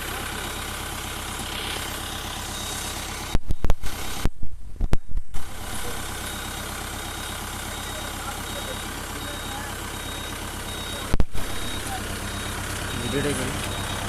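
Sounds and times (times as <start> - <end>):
tractor diesel engine running: 0.0 - 14.0
loud thumps and rumbles: 3.3 - 6.2, 11.1 - 11.8.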